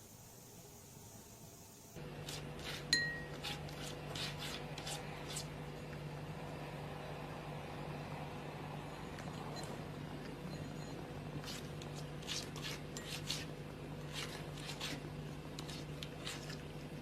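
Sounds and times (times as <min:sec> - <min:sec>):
steady low hum: 0:00.0 - 0:17.0
glassy clink: 0:02.9 - 0:03.3, 0:08.9 - 0:11.1.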